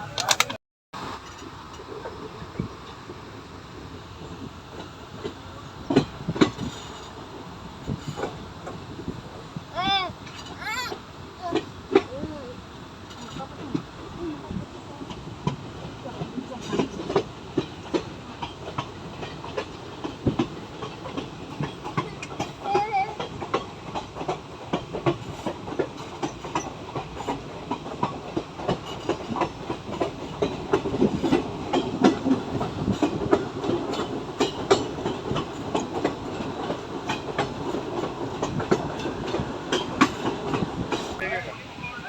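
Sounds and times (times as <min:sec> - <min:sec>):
wheels clicking over rails: 0:00.0 - 0:02.7, 0:09.8 - 0:12.4, 0:13.0 - 0:41.2
train rumbling: 0:00.0 - 0:42.0.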